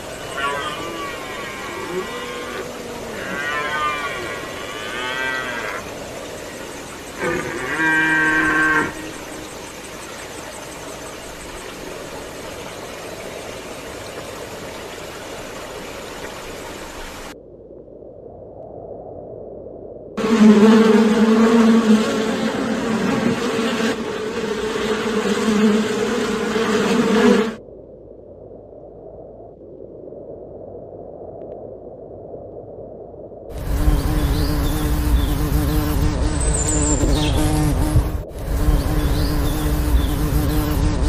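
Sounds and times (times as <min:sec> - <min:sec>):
steady hiss: 0:00.0 - 0:17.4, 0:33.5 - 0:41.0
cow-like lowing calls: 0:00.3 - 0:05.8.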